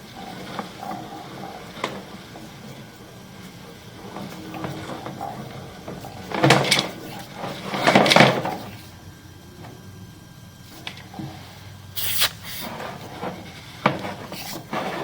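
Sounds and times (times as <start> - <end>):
rough scraping clatter: 12.6 - 15.0.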